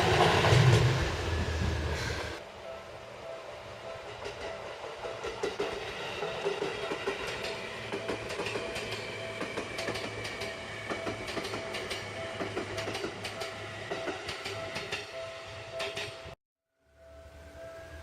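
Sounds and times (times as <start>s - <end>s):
train steady hum: 0.0s - 16.4s
train wheels clicking over rail joints: 4.0s - 16.4s.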